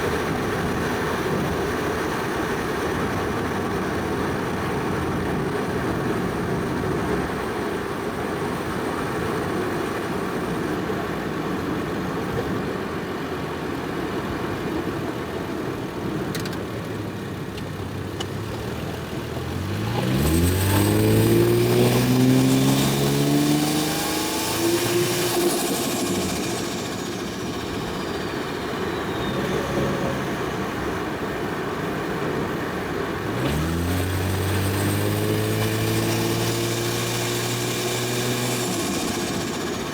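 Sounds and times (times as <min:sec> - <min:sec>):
car engine rumbling and revving: 0:15.2 - 0:39.9
turbo whistle: 0:21.3 - 0:31.1.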